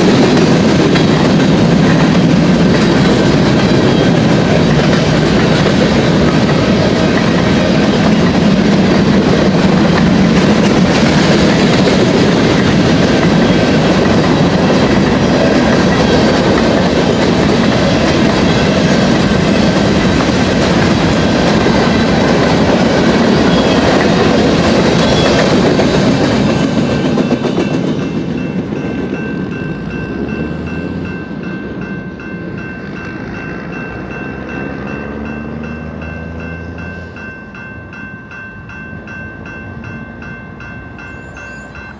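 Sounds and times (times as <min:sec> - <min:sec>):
train wheels clattering over rail joints: 0:00.0 - 0:29.2.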